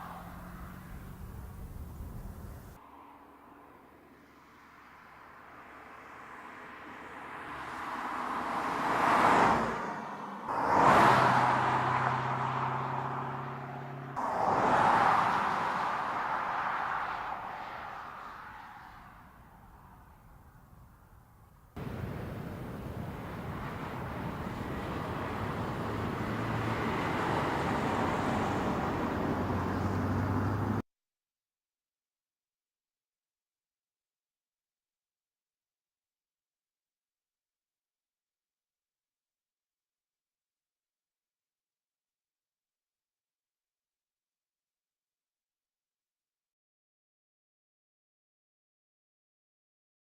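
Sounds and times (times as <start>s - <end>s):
car engine hum: 0.0s - 2.8s, 21.8s - 30.8s
car tyre and wind rush: 0.0s - 2.8s, 4.6s - 30.8s
road noise: 0.0s - 30.8s.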